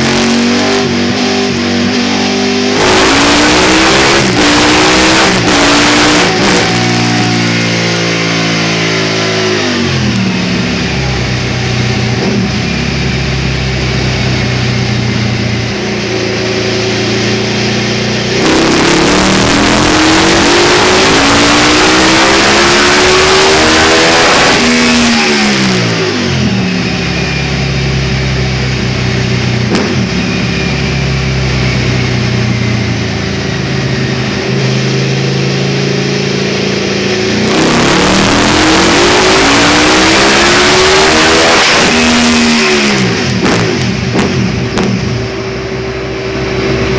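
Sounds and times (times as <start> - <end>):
motorcycle engine revving on dynamometer: 0.0 - 46.9.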